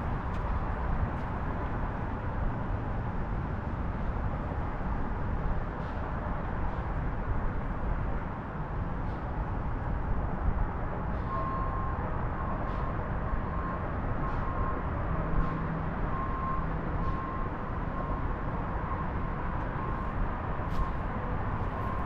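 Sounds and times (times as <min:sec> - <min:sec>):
truck engine rumble: 0:00.0 - 0:10.0, 0:12.4 - 0:22.0
truck reversing alarm beeping: 0:11.1 - 0:22.0.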